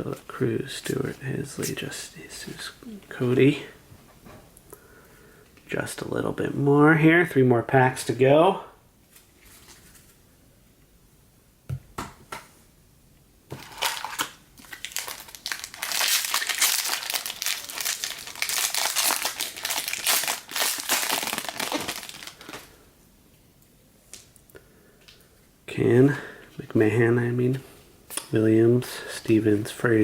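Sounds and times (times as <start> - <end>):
wrapper tearing and crinkling: 13.6 - 22.8.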